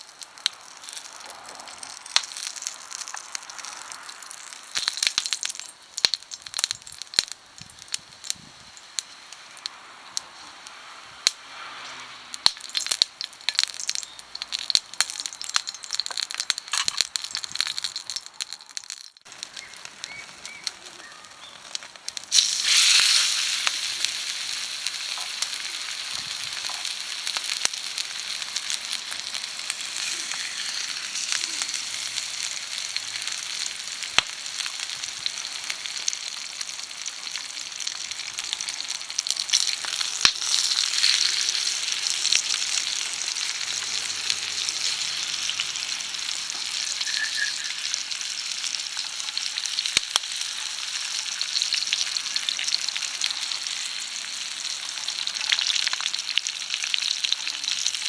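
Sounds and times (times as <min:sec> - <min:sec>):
food sizzling in a skillet: 0:00.0 - 0:58.0
sharp popping of frying food: 0:00.0 - 0:58.0.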